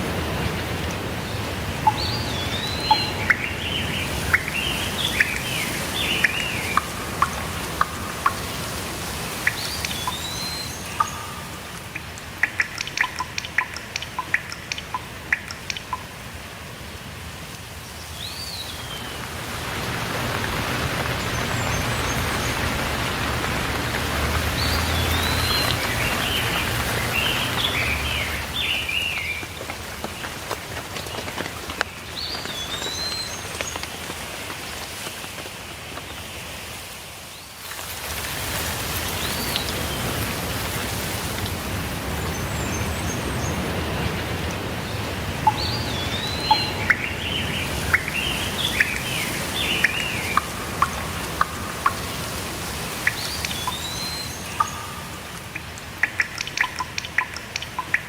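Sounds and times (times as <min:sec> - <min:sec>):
steady rain: 0:00.0 - 0:58.0
birds chirping: 0:00.3 - 0:16.2, 0:18.0 - 0:31.4, 0:42.1 - 0:58.0.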